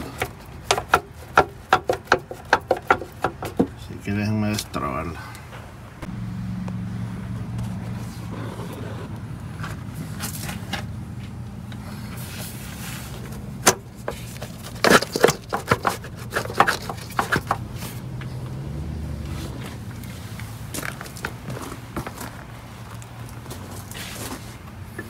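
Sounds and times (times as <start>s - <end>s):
hard parts knocking and scraping: 0.0s - 3.8s, 13.1s - 18.4s
low hum: 6.0s - 13.6s.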